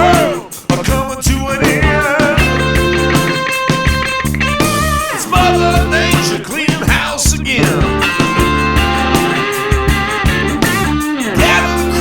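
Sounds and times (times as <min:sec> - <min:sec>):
instrumental rock music: 0:00.0 - 0:12.0.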